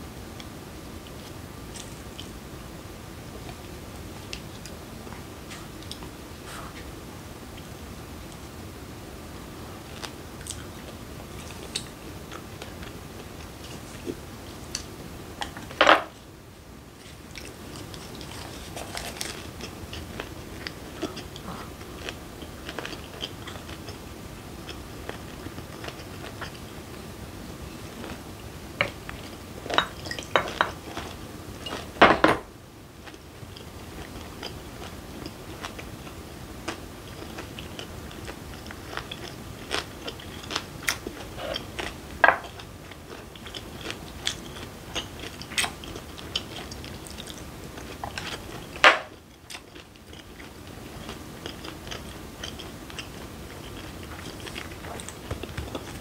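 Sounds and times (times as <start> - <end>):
person chewing food: 17.0 - 27.1, 27.7 - 32.0, 33.0 - 56.0.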